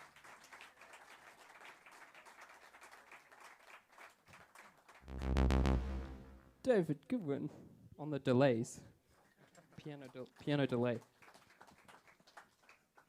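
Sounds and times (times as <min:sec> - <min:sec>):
audience applauding lightly: 0:00.0 - 0:06.0, 0:09.5 - 0:13.0
loud low band note: 0:05.0 - 0:06.6.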